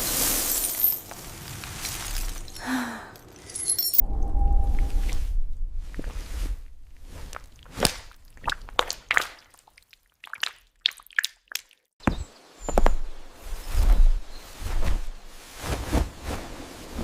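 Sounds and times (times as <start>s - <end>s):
low rumble: 3.9s - 7.7s
wet clicks and squishes: 7.3s - 11.9s.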